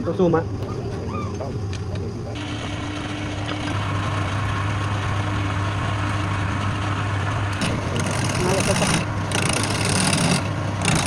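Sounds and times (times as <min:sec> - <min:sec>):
lathe motor humming: 0:02.3 - 0:11.0
tool cutting spinning wood: 0:02.4 - 0:11.0.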